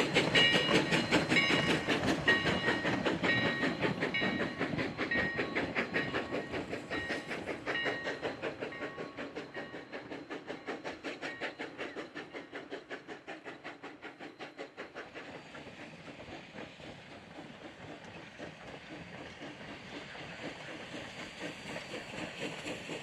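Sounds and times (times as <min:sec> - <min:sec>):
steam locomotive chuffing: 0:00.0 - 0:23.0.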